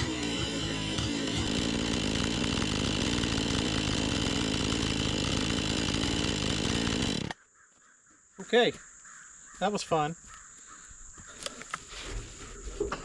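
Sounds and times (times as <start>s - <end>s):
chainsaw running: 0.0s - 7.4s.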